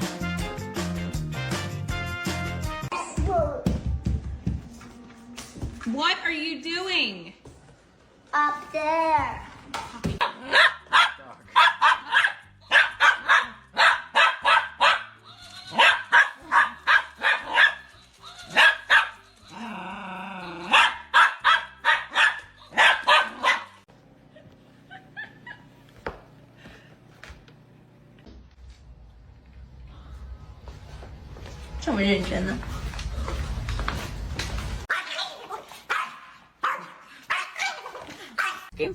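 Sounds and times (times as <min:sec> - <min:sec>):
dog barking: 0:10.2 - 0:17.9, 0:18.5 - 0:19.2, 0:20.7 - 0:23.8, 0:34.9 - 0:38.7.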